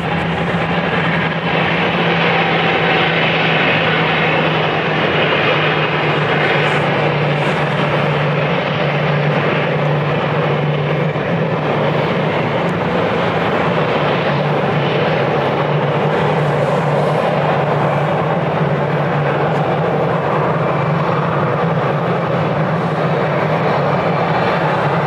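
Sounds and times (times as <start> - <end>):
jet engines at takeoff power: 0.0 - 25.0.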